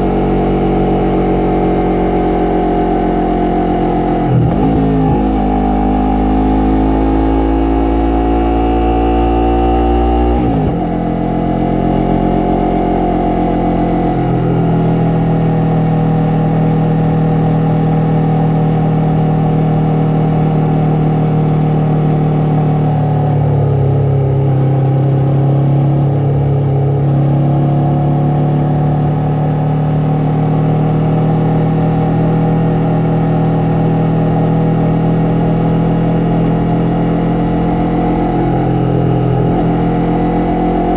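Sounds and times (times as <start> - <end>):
motorcycle engine revving and shifting: 0.0 - 40.9.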